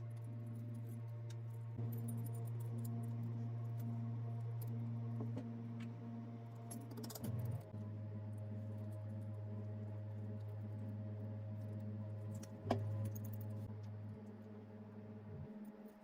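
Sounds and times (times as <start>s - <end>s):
low machine hum: 0.0s - 16.0s
metal parts clicking and clinking: 6.7s - 7.7s.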